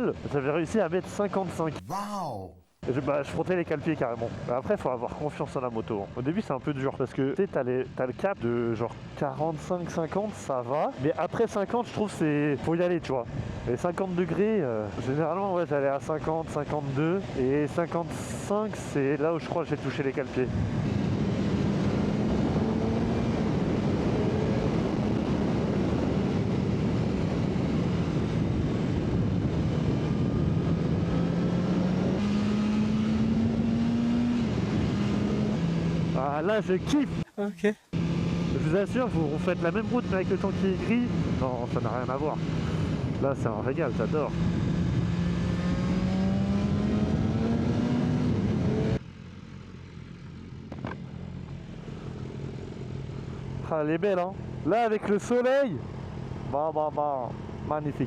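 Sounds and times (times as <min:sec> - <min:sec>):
wind rushing over microphone: 0:20.5 - 0:32.2, 0:42.4 - 0:43.4, 0:44.0 - 0:49.0
motorcycle engine revving: 0:21.0 - 0:26.5, 0:30.5 - 0:36.2, 0:37.9 - 0:43.1, 0:43.9 - 0:51.3.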